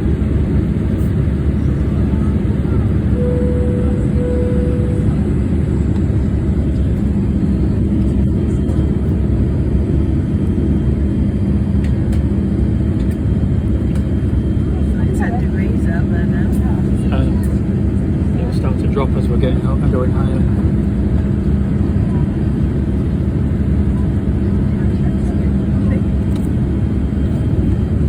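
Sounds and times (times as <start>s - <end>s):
airplane cabin engine rumble: 0.0s - 28.0s
short steady tone: 3.2s - 5.1s.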